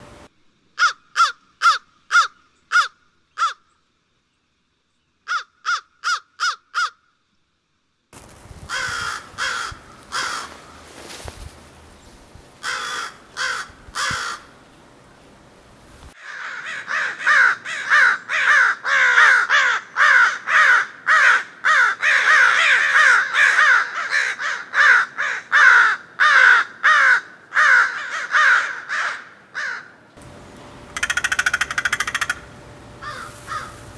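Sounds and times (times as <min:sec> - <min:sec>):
crow cawing: 0:00.8 - 0:03.6, 0:05.3 - 0:07.0, 0:08.7 - 0:10.8, 0:12.6 - 0:14.5, 0:16.2 - 0:30.0, 0:31.0 - 0:33.9.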